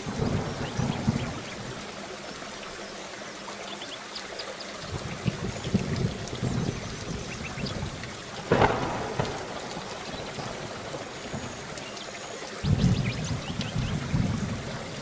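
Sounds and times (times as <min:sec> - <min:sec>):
sharp thunder crack: 0:00.0 - 0:01.7, 0:05.0 - 0:11.7, 0:12.6 - 0:15.0
low thunder rumble: 0:00.0 - 0:02.0, 0:04.8 - 0:15.0
steady rain: 0:00.0 - 0:15.0.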